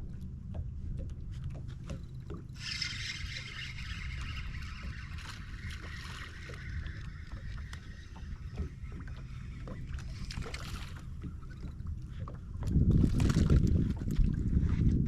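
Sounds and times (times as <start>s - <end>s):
small clicks and ticks: 0.0s - 11.8s
steady low rumble: 0.0s - 15.0s
water lapping against boat hull: 0.0s - 15.0s.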